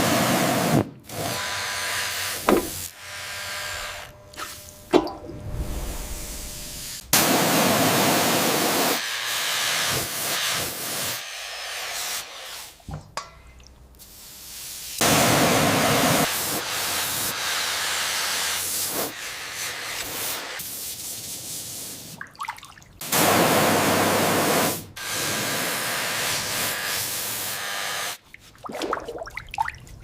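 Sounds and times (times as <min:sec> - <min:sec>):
pressurised spray hissing: 0:02.4 - 0:02.9, 0:05.4 - 0:11.2, 0:14.0 - 0:22.2, 0:23.0 - 0:27.5.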